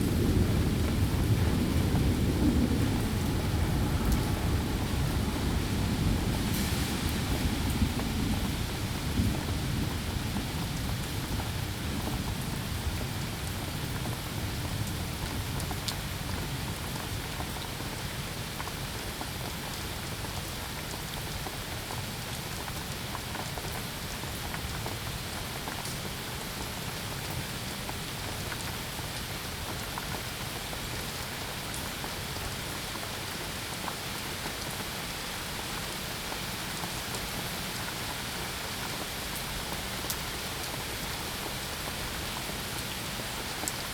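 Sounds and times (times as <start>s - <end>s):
low rumble: 0.0s - 9.4s
steady rain falling: 0.0s - 43.9s.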